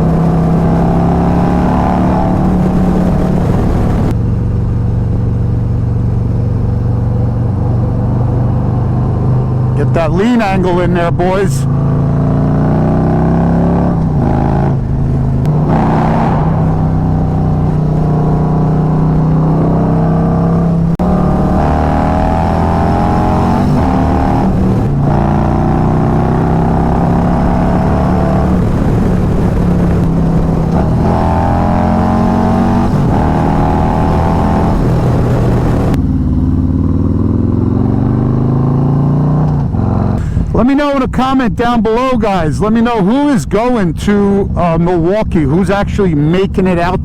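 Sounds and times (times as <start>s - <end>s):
wind rushing: 0.0s - 4.2s, 9.2s - 36.0s
motorcycle engine running: 0.0s - 40.5s.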